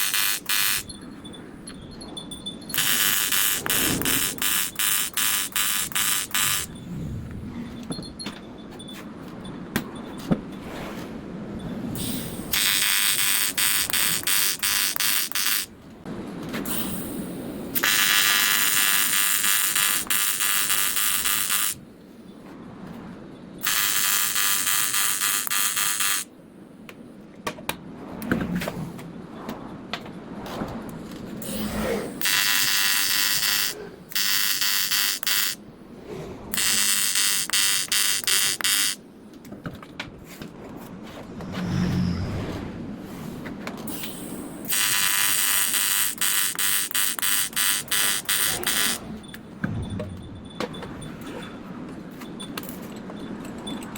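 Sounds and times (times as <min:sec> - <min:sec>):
welding arc buzzing: 0:00.0 - 0:00.9, 0:02.7 - 0:06.8, 0:12.0 - 0:15.7, 0:16.7 - 0:21.8, 0:23.6 - 0:26.3, 0:31.4 - 0:35.6, 0:36.5 - 0:39.0, 0:43.9 - 0:49.0.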